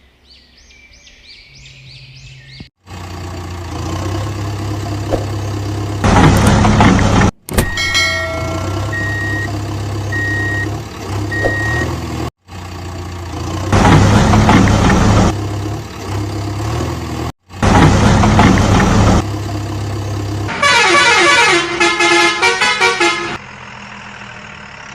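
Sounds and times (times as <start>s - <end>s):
vehicle engine running: 2.8s - 24.9s
reversing beeps: 8.9s - 9.5s, 10.1s - 10.7s, 11.3s - 11.9s.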